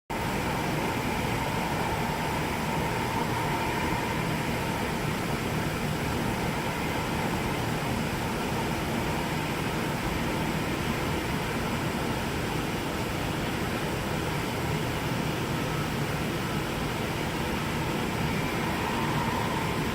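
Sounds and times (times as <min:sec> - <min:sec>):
faint whine: 0:00.1 - 0:19.9
jet airliners taxiing: 0:00.3 - 0:09.6, 0:16.0 - 0:19.9.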